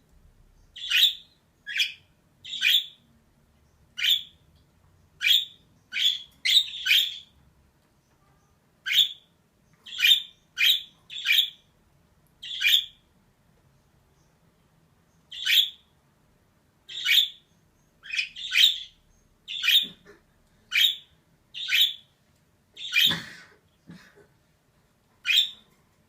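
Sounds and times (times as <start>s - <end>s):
budgerigar chirping: 0.7s - 3.0s, 3.9s - 4.4s, 5.2s - 7.4s, 8.8s - 11.7s, 12.4s - 13.0s, 15.3s - 15.9s, 16.9s - 20.1s, 20.7s - 22.1s, 22.8s - 23.2s, 25.2s - 25.6s.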